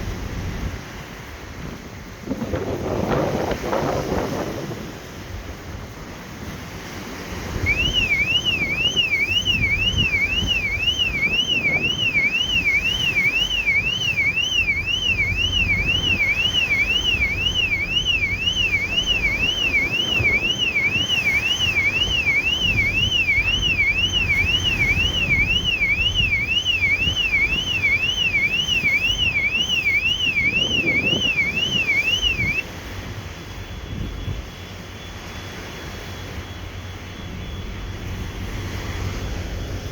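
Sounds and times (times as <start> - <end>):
wind noise: 0.0 - 39.9
electronic alarm siren warbling: 7.5 - 32.6.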